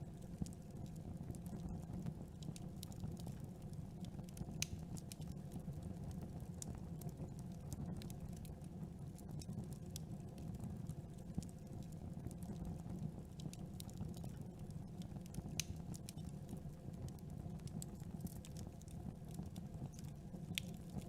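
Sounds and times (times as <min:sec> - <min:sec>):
low rumble of flames: 0:00.0 - 0:21.0
burning wood popping and snapping: 0:00.9 - 0:05.4, 0:09.2 - 0:21.0.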